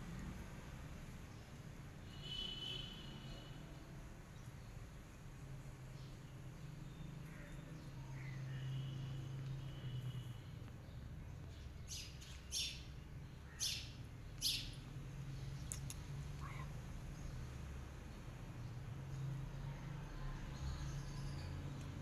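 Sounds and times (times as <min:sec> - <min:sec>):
small bird chirping: 0:06.0 - 0:19.3.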